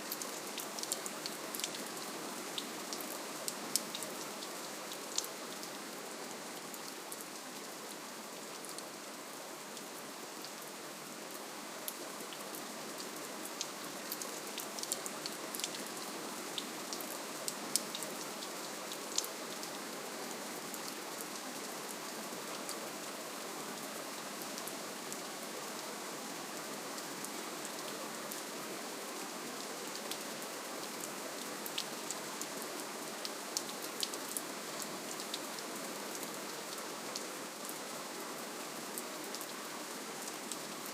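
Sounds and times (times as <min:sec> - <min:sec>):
soft rainfall: 0:00.0 - 0:40.9
raindrops ticking on a surface: 0:00.1 - 0:05.8, 0:11.8 - 0:19.8, 0:29.9 - 0:37.2.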